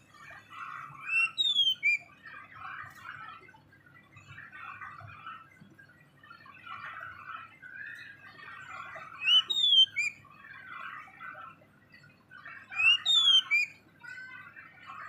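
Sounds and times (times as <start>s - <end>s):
soft bird chattering: 0.6s - 2.8s, 8.0s - 10.2s, 12.4s - 13.8s
bird whistling sliding notes: 1.1s - 2.0s, 9.2s - 10.1s.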